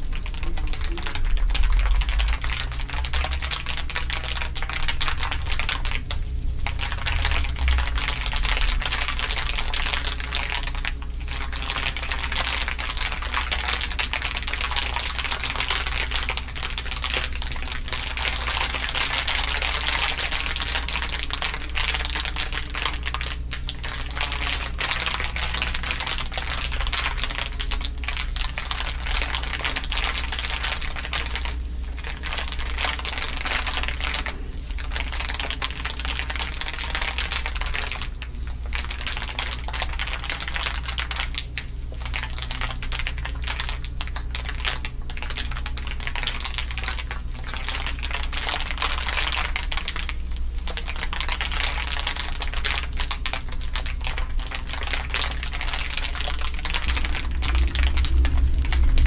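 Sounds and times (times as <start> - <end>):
low hum: 0.0 - 10.5, 54.3 - 59.0
dense crinkling: 0.0 - 59.0.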